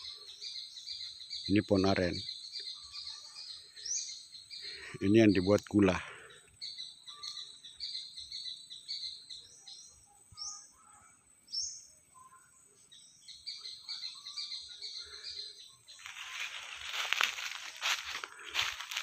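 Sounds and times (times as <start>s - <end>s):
birds chirping: 0.0s - 19.0s
rustling through undergrowth: 15.9s - 19.0s.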